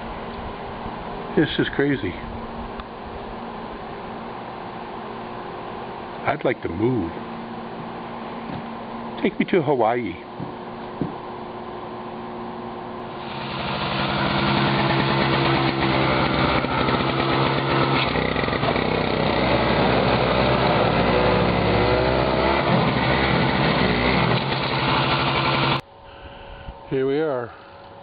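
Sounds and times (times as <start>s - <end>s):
snowblower engine running: 13.0s - 25.8s.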